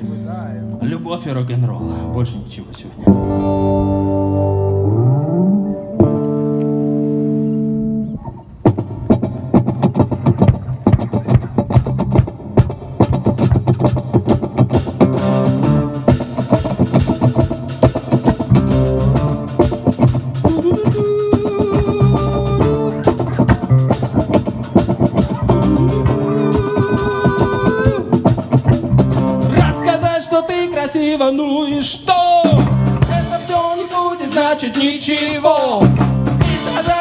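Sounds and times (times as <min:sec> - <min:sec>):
lead guitar bending notes: 0:00.0 - 0:30.4, 0:35.8 - 0:37.0
live rock band playing: 0:03.0 - 0:30.4, 0:32.4 - 0:37.0
cymbals: 0:36.4 - 0:37.0.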